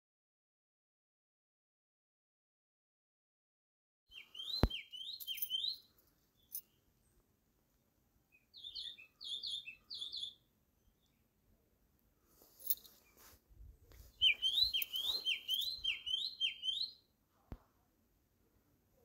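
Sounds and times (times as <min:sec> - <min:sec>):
bird calling twisting phrases: 0:14.2 - 0:17.0.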